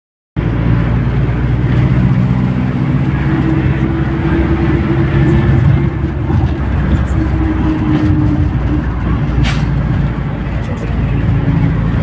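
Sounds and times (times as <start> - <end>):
bus diesel engine running: 0.4 - 12.0.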